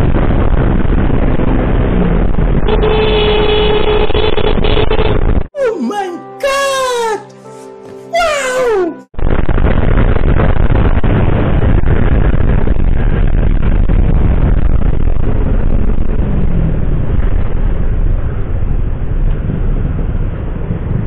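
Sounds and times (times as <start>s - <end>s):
road and traffic noise: 0.0s - 5.5s, 12.3s - 21.0s
wind rumble on microphone: 0.0s - 5.5s, 9.2s - 21.0s.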